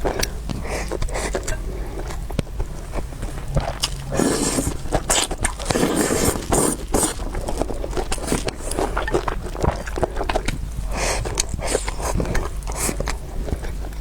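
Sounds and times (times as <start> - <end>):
chewing noodles: 0.0 - 14.0.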